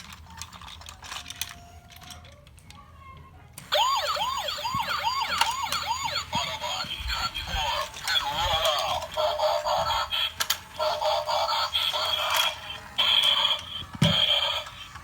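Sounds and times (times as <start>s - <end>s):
faint clicking from toy: 0.0s - 6.0s, 7.1s - 15.0s
toy electronic siren wailing: 3.7s - 15.0s.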